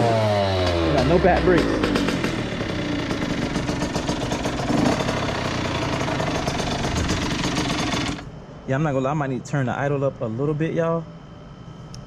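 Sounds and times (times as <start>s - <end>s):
two-stroke engine idling: 0.0s - 8.3s.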